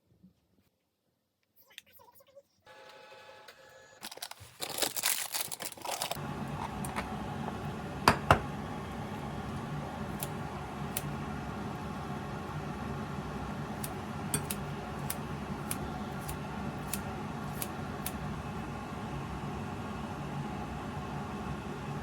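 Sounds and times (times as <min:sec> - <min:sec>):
low machine hum: 0:05.8 - 0:22.0.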